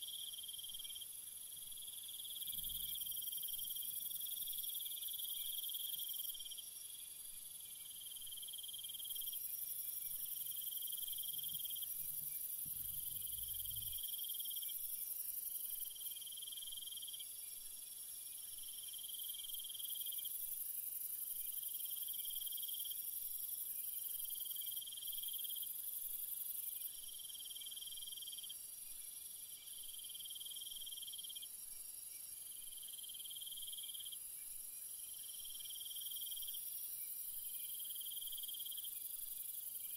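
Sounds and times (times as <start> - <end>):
insects chirring drone: 0.0 - 39.9
pulsing lower insect call: 7.9 - 14.7.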